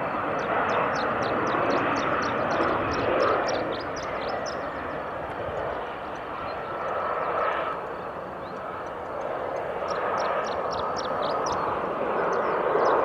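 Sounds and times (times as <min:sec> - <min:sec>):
airliner engine rushing: 0:00.0 - 0:13.0
high chirp-like ticks: 0:01.7 - 0:07.1, 0:07.7 - 0:11.7.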